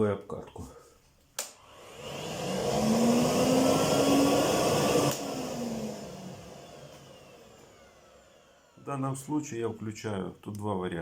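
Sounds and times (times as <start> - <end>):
vacuum cleaner motor whine: 1.5 - 9.7.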